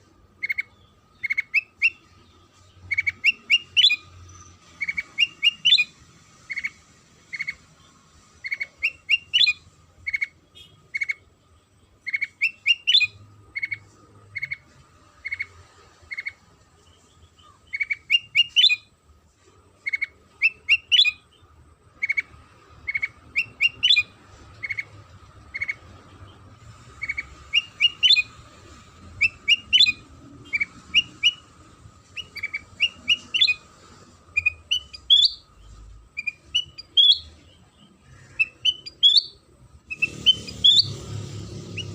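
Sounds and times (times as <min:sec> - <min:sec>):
bulbul chirping calls: 0:00.4 - 0:02.2, 0:02.8 - 0:05.9, 0:12.0 - 0:13.8, 0:17.3 - 0:18.9, 0:19.9 - 0:25.9, 0:27.0 - 0:41.0.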